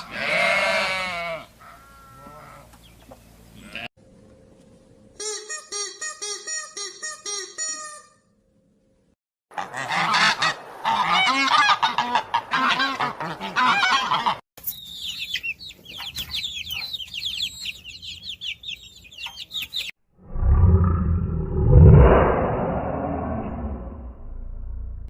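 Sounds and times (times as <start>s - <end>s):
waterfowl honking: 9.5s - 14.4s
low rumble: 20.2s - 25.0s.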